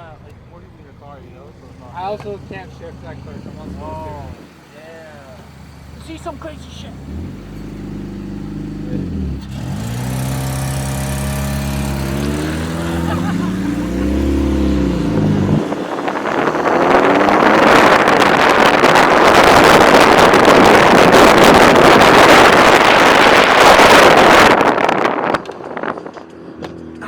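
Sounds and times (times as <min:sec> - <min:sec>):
car engine accelerating: 0:00.2 - 0:27.0
loud rushing noise: 0:09.5 - 0:25.9.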